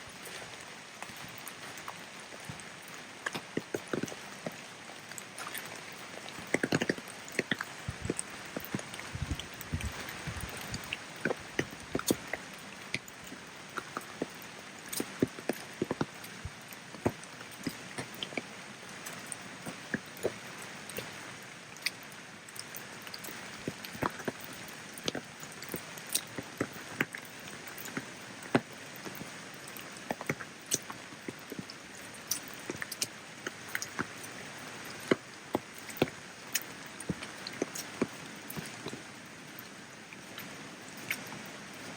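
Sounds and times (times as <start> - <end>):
rain hiss: 0.0 - 41.9
drops ticking on a surface: 5.2 - 21.1.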